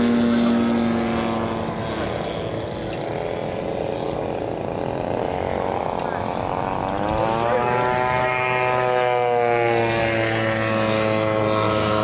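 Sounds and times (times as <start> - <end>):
model airplane engine droning: 0.0 - 12.0.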